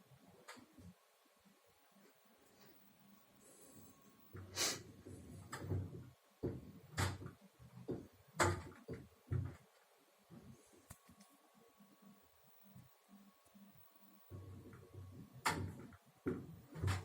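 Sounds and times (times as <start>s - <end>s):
dull knocks and thuds: 5.1s - 9.7s, 14.3s - 17.0s.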